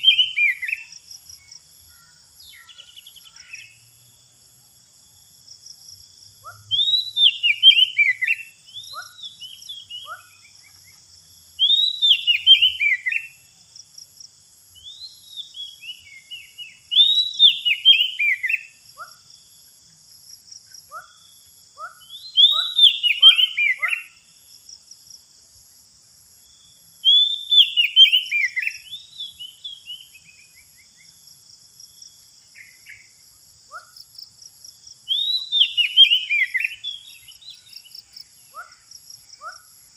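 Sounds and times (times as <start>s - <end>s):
bird whistling song: 0.0s - 0.9s, 6.4s - 11.0s, 11.6s - 13.5s, 14.8s - 19.2s, 21.8s - 24.2s, 27.0s - 31.1s, 35.0s - 38.8s
bird chirps: 0.0s - 3.9s, 6.4s - 13.5s, 14.7s - 19.3s, 20.7s - 24.3s, 26.5s - 31.2s, 35.0s - 39.7s
insects humming: 0.0s - 39.9s.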